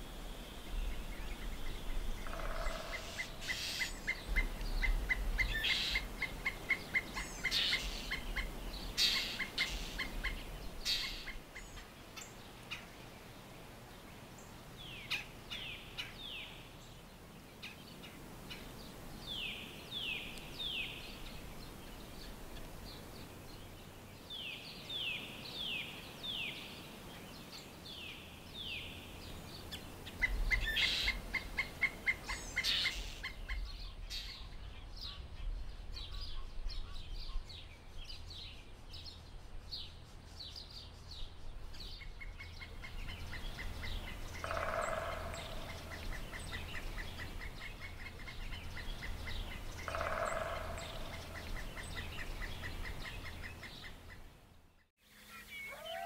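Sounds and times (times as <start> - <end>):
harsh low bird calls: 41.9 - 54.2.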